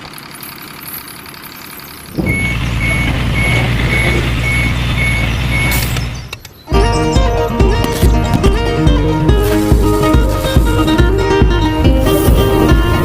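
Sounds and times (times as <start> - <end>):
truck engine running: 0.0 - 13.0
reversing alarm beeping: 0.8 - 6.8.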